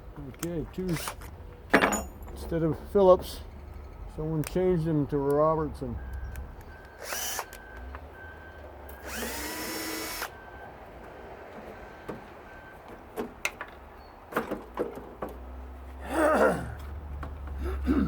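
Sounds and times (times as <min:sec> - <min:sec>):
cordless drill spinning: 0:07.0 - 0:07.6, 0:09.0 - 0:10.4.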